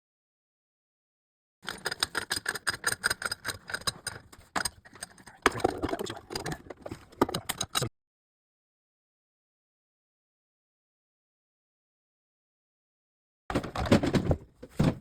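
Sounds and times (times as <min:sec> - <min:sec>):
hand tools clicking and rattling: 0:01.6 - 0:07.9.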